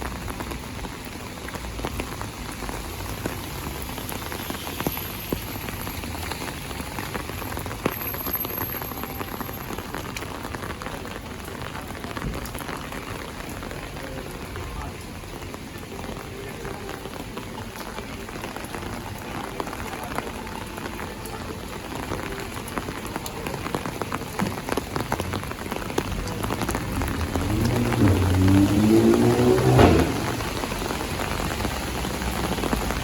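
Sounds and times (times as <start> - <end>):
heavy rain falling: 0.0 - 33.0
low rising pitched sound: 26.7 - 30.9.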